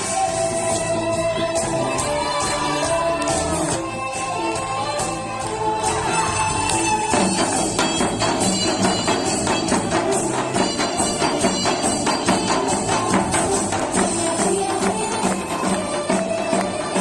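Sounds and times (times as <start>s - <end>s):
backing track music: 0.0s - 17.0s
hourglass drum fast rhythm: 6.2s - 17.0s.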